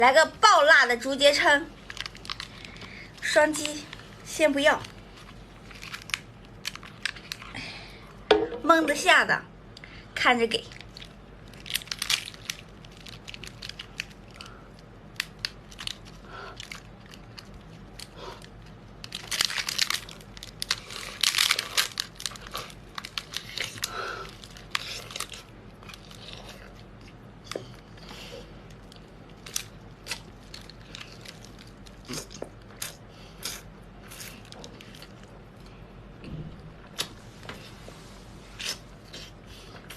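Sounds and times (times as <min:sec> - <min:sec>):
person chewing and crunching: 0:10.8 - 0:35.8, 0:38.5 - 0:39.9.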